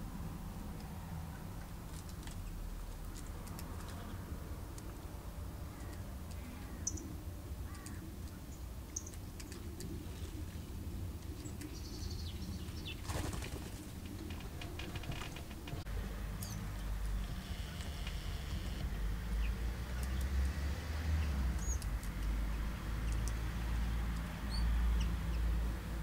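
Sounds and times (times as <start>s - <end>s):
birds chirping and calling: 5.6s - 10.6s, 11.2s - 15.8s, 16.4s - 20.4s, 21.2s - 23.5s
faint clicks: 23.0s - 23.4s.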